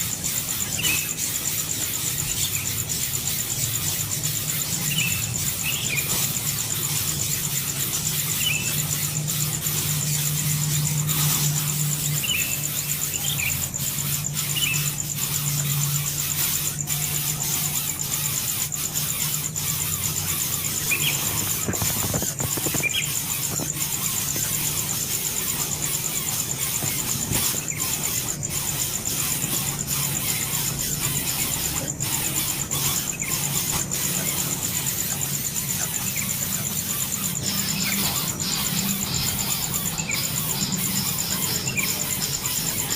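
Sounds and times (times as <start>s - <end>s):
high-pitched pulsing whine: 0.0s - 42.9s.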